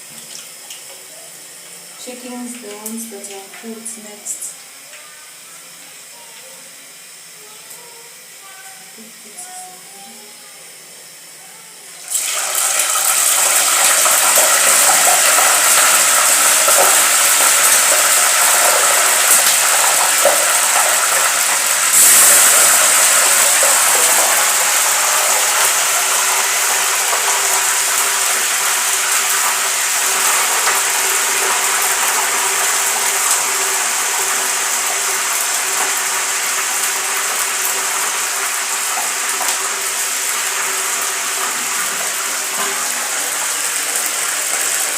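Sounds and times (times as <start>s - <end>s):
chicken sizzling in hot oil: 12.0s - 44.9s.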